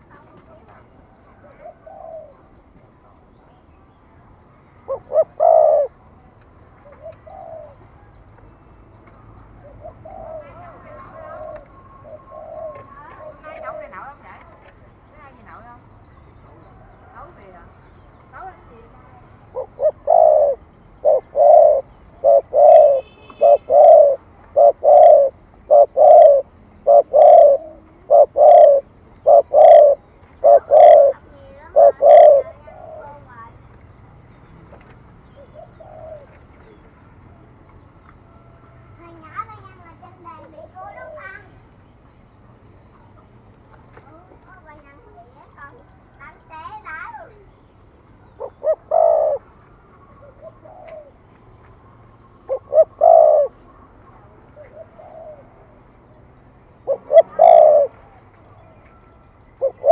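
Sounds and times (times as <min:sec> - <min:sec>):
dove cooing: 0:00.0 - 0:03.6, 0:04.8 - 0:06.1, 0:06.8 - 0:08.2, 0:09.1 - 0:17.7, 0:18.4 - 0:33.6, 0:35.2 - 0:36.9, 0:39.0 - 0:41.7, 0:48.3 - 0:51.3, 0:52.4 - 0:59.9.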